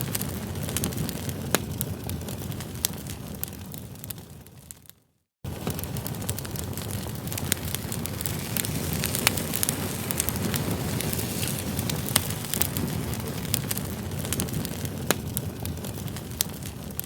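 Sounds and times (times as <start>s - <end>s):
campfire crackling and popping: 0.0s - 17.0s
fire low rush: 5.5s - 17.0s.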